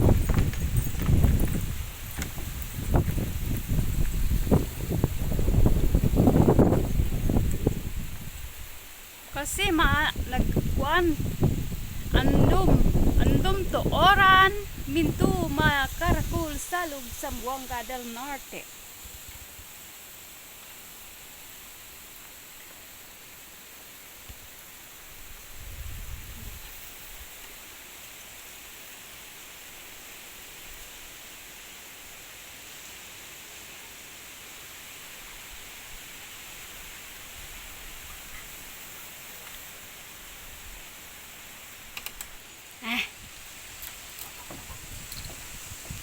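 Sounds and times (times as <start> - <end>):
wind gust on microphone: 0.0 - 19.6, 25.1 - 27.4, 43.2 - 46.0
wind rustling palm fronds: 0.0 - 46.0.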